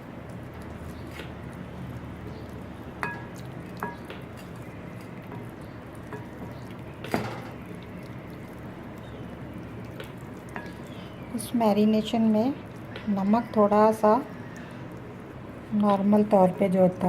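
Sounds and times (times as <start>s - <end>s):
steady low hum: 0.0s - 17.0s
utensil clinking against a dish: 2.3s - 8.0s, 9.8s - 13.2s.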